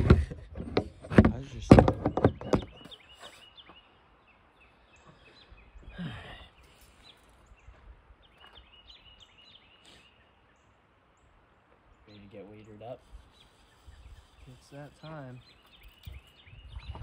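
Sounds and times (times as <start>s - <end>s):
high chirps of small birds: 1.3s - 17.0s.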